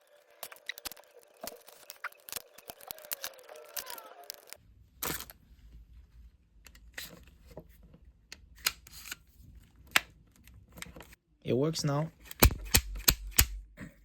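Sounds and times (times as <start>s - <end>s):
glue gun plastic parts clicking: 12.2s - 13.6s.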